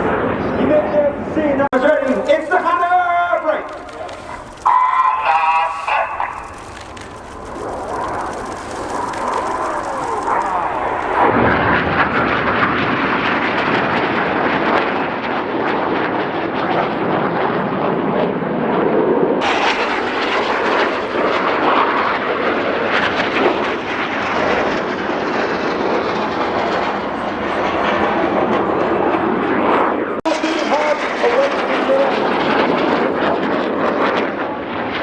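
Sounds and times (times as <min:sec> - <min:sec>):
loud rushing jet noise: 0:01.8 - 0:12.9, 0:19.4 - 0:22.4.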